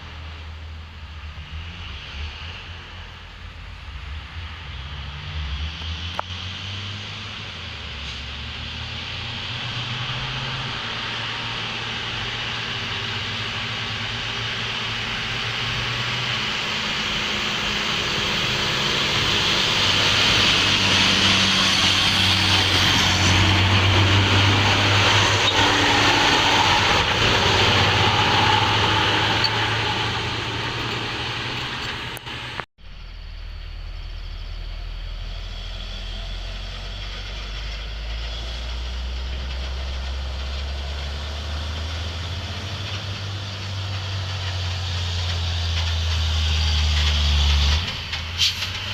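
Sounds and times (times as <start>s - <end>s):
truck engine running low: 5.8s - 48.9s
hissing truck brakes: 7.8s - 32.6s, 35.5s - 48.9s.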